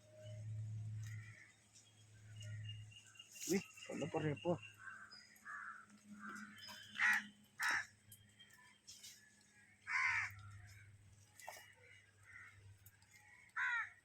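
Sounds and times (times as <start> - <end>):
birds calling: 0.0 - 14.0.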